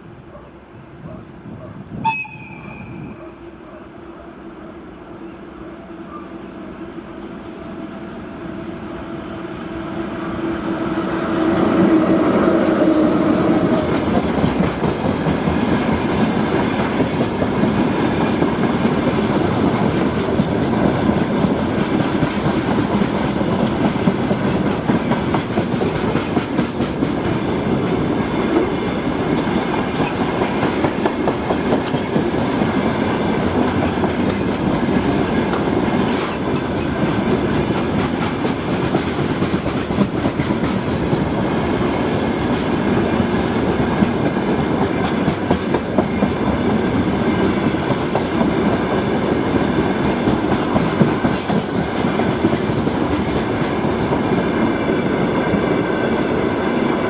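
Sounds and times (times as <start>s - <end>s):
electric locomotive humming: 0.0s - 57.0s
wheels clacking over rail joints: 12.8s - 54.4s.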